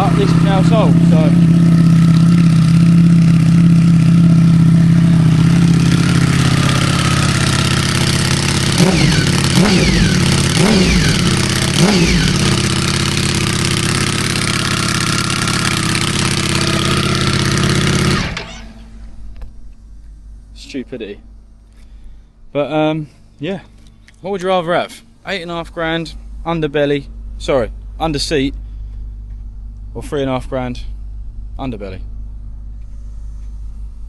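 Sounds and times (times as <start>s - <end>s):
motorcycle engine idling: 0.0s - 19.3s.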